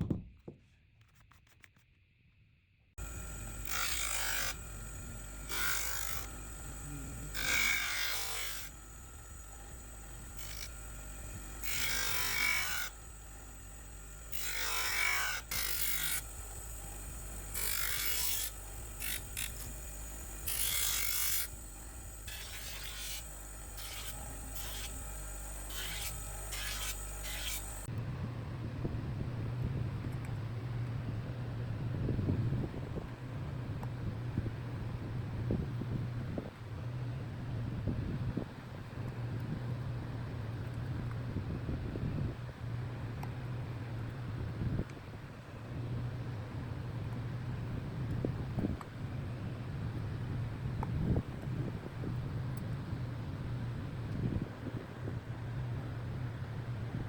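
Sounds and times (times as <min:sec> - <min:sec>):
steel being ground hissing scrape: 0:03.0 - 0:27.9
steady low hum: 0:03.0 - 0:57.0.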